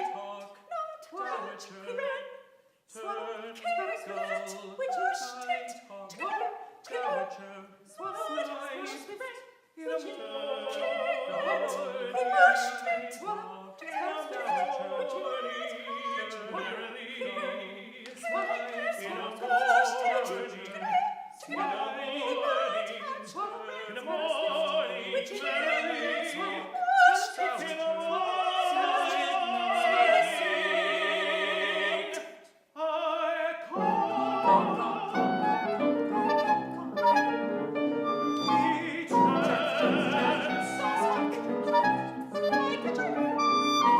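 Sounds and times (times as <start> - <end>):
vocal quartet singing: 0.0 - 43.9
instrumental accompaniment: 33.7 - 43.9.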